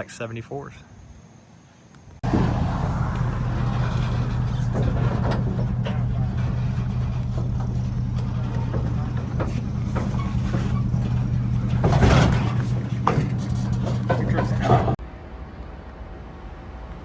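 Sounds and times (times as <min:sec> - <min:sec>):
vehicle engine running steadily: 0:02.2 - 0:15.0
light knocks and clatters: 0:02.3 - 0:15.0.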